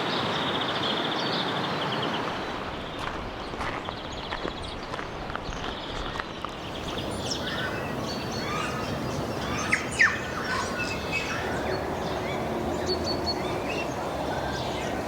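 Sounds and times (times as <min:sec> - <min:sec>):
small birds chirping: 0:00.3 - 0:15.0
downward-sweeping bird calls: 0:06.6 - 0:15.0.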